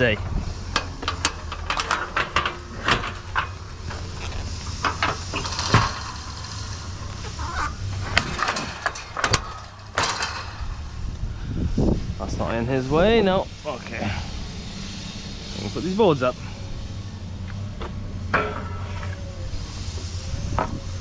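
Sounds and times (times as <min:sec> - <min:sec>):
low engine rumble: 0:00.0 - 0:21.0
knocks and clatters: 0:00.7 - 0:11.0, 0:17.4 - 0:19.3.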